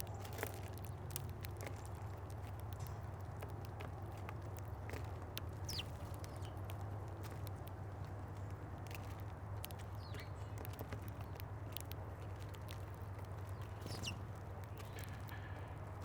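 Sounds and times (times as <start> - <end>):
birds pecking at feeder: 0.0 - 16.0
bird chirps: 5.6 - 6.6, 13.5 - 14.2.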